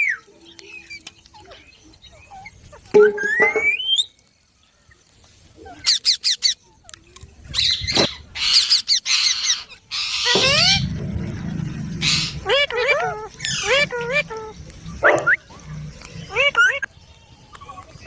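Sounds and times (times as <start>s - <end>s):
parakeets calling: 7.5s - 17.0s
harsh screechy squawks: 12.0s - 14.6s.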